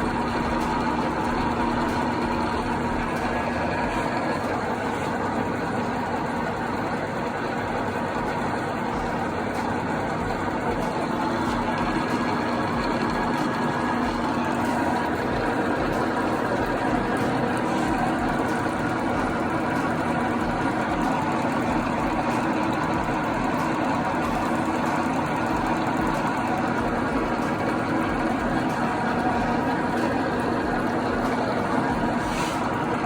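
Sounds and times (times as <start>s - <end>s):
milling machine humming: 0.0s - 33.0s.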